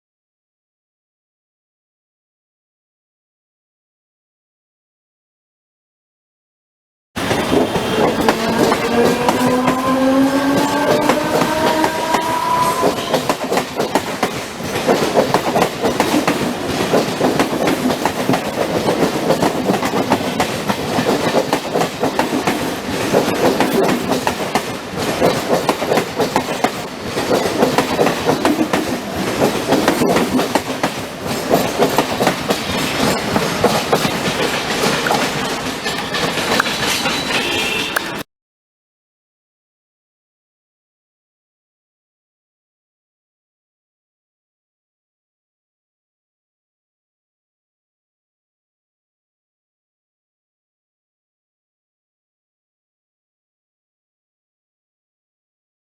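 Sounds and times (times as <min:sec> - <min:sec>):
train wheels clattering on track: 0:07.2 - 0:38.2
rising tone: 0:08.0 - 0:13.0.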